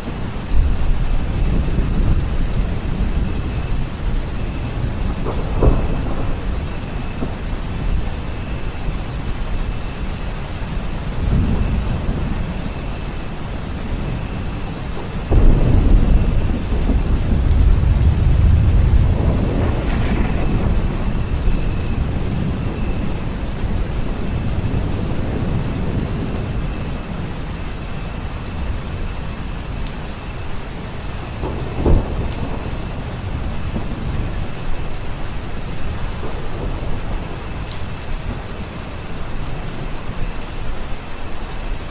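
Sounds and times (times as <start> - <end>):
steady rain: 0.0 - 41.9
rolling thunder: 0.1 - 29.9, 30.7 - 38.8
sharp thunder clap: 15.3 - 22.9.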